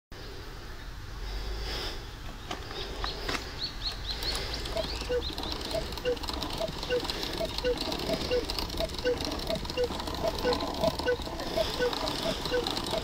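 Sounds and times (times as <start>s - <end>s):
sharp clicks: 2.5s - 13.0s
short high bird chirps: 3.8s - 13.0s.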